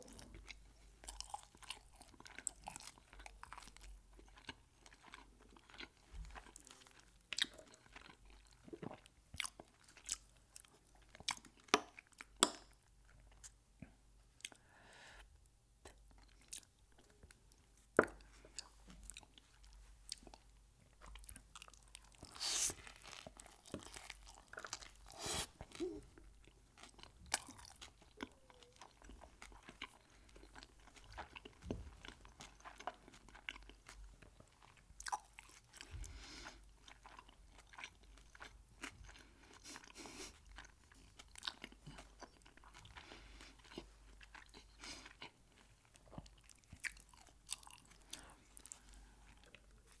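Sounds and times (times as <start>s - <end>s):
crunchy bites and chewing: 21.1s - 34.0s, 40.6s - 48.8s.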